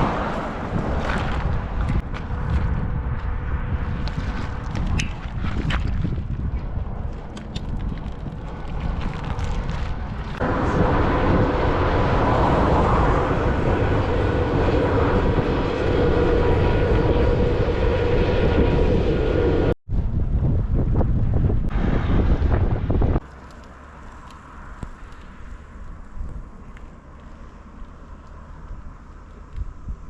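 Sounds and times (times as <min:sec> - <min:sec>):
wind buffeting microphone: 0:00.0 - 0:23.2, 0:24.7 - 0:30.0.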